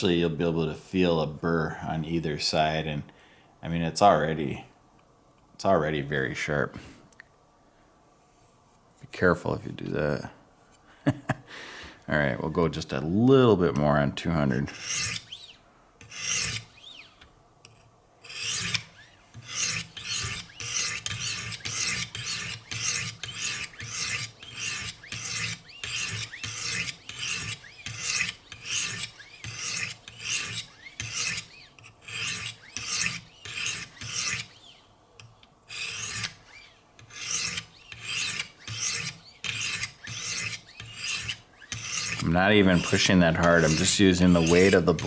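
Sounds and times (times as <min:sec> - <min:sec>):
sharpening stones scraping knife blade: 0:16.0 - 0:16.7, 0:17.7 - 0:34.5, 0:35.2 - 0:36.4, 0:37.0 - 0:45.0.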